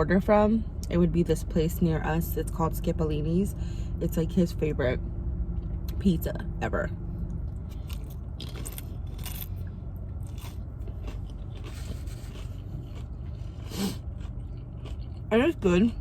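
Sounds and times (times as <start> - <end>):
steady low hum: 0.0 - 16.0
person chewing crunchy food: 7.4 - 15.3.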